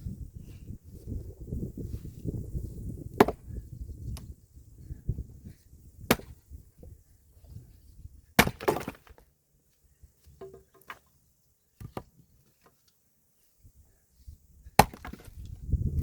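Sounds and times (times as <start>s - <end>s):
axe chopping wood: 3.1s - 3.4s, 6.0s - 6.4s, 8.4s - 9.2s, 14.8s - 15.4s.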